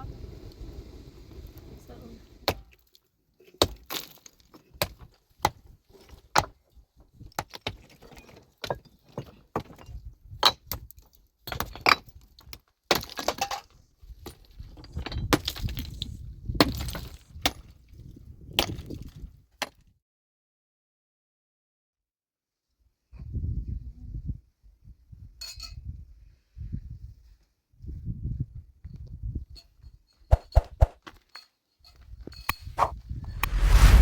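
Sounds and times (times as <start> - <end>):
tool striking rock: 3.6 - 4.2
stones and rubble clattering: 3.6 - 4.9, 7.4 - 13.6, 14.5 - 16.0.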